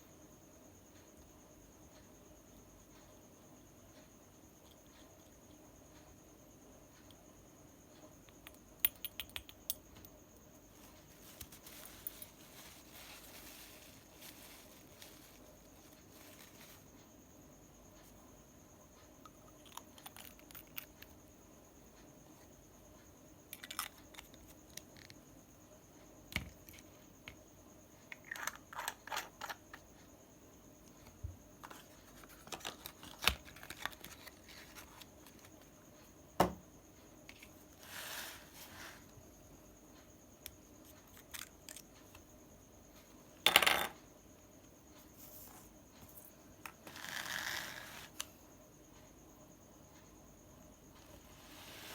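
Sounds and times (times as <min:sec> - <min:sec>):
light rustling: 0:10.8 - 0:17.0.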